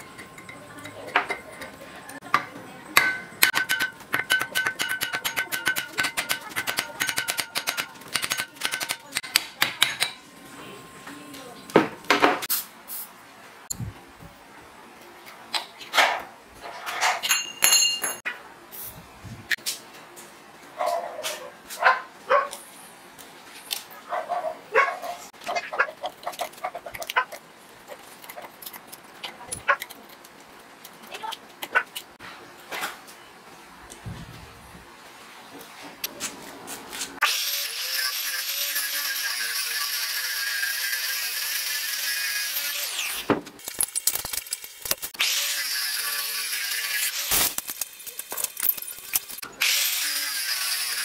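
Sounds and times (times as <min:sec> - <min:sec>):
metal tools clicking and scraping: 0:00.0 - 0:10.2, 0:16.6 - 0:18.3, 0:26.2 - 0:32.2, 0:47.0 - 0:49.5
metallic tapping and clinking: 0:00.0 - 0:10.2, 0:17.2 - 0:18.2
dog barking: 0:20.8 - 0:22.6, 0:24.0 - 0:26.0.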